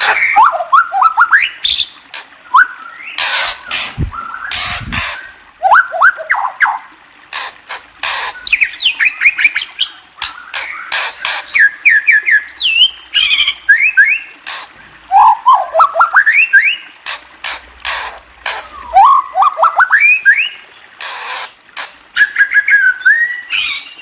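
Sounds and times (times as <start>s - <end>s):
songbird singing: 0.0s - 6.9s, 8.3s - 14.4s, 15.1s - 16.9s, 22.1s - 24.0s.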